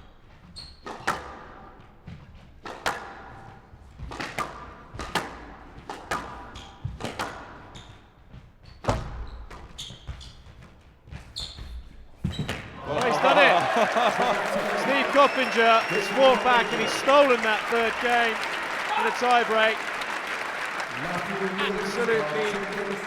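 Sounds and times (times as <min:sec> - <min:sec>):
squash ball hitting rackets and walls: 0:00.8 - 0:08.0.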